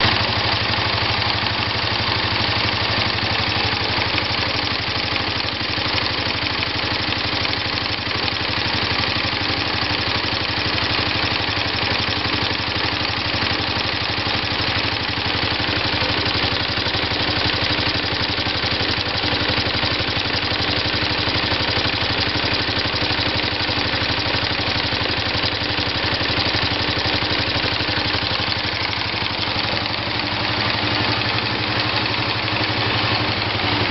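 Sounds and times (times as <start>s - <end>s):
engine idling: 0.0s - 33.9s.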